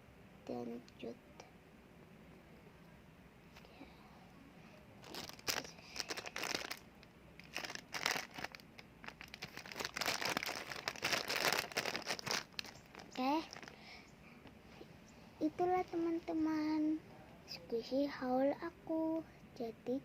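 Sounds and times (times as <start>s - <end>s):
plastic bag crinkling: 5.0s - 13.9s.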